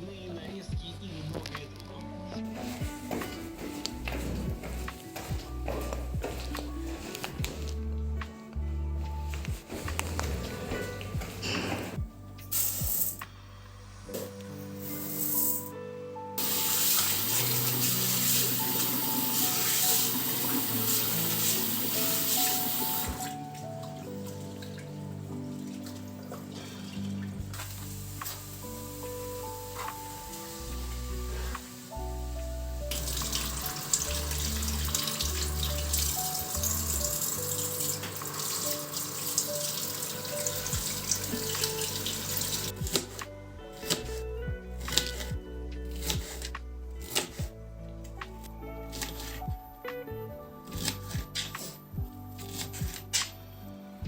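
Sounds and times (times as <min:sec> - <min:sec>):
background music with held notes: 0:00.0 - 0:54.0
water running from a tap: 0:16.4 - 0:23.3, 0:32.8 - 0:43.0.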